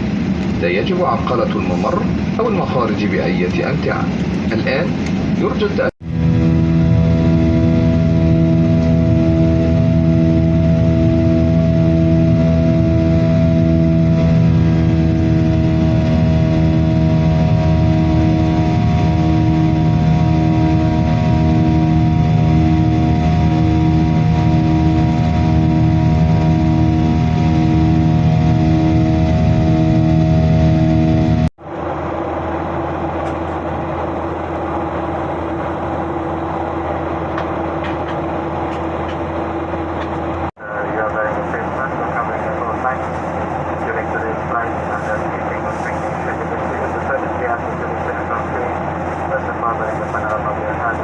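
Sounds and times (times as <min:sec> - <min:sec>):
airliner engine hum: 0:00.0 - 0:51.0
steady tone: 0:00.0 - 0:51.0.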